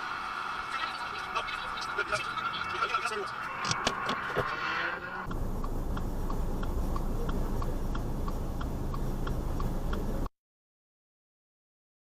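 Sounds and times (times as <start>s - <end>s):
low steady rumble: 4.7s - 10.3s
steady ticking: 5.2s - 10.3s.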